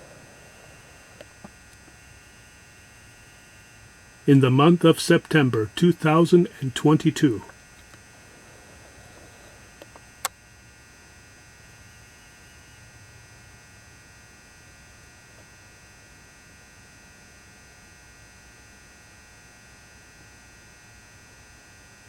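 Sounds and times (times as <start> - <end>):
lamp electrical hum and buzz: 0.0 - 22.0.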